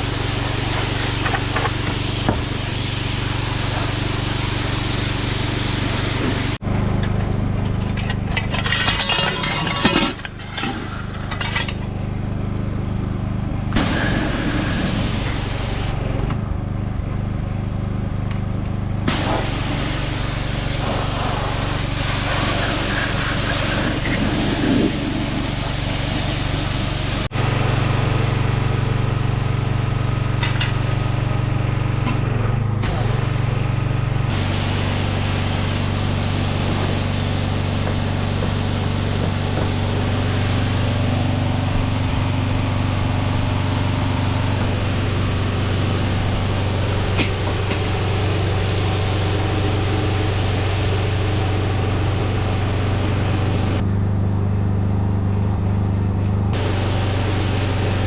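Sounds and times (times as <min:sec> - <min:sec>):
water spraying hiss: 0:00.0 - 0:06.6, 0:13.8 - 0:16.0, 0:19.1 - 0:32.2, 0:32.8 - 0:53.8, 0:56.6 - 0:58.0
pressure washer engine running: 0:00.0 - 0:07.6, 0:08.5 - 0:58.0.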